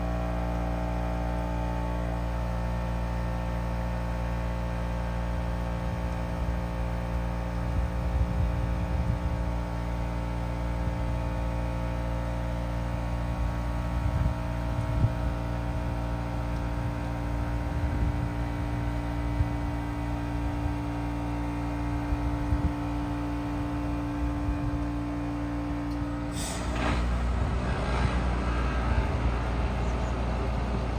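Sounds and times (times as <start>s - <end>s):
heat pump humming: 0.0s - 30.9s.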